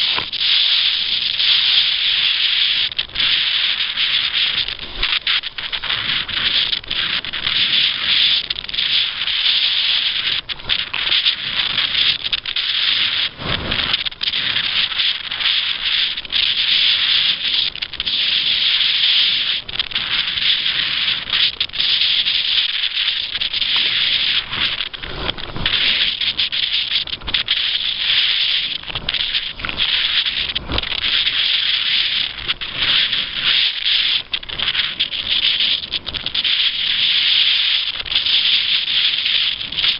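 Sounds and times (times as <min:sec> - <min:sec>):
waves thumping against hull: 0:19.6 - 0:37.0.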